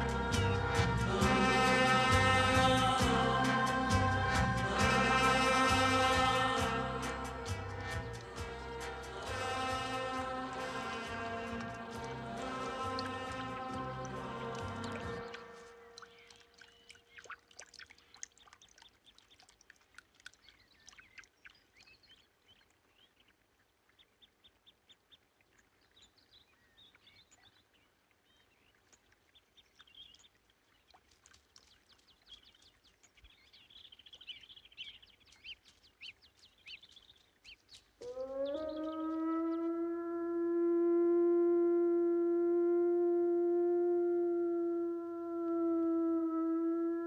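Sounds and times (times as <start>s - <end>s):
faint small birds chirping: 15.2s - 38.9s.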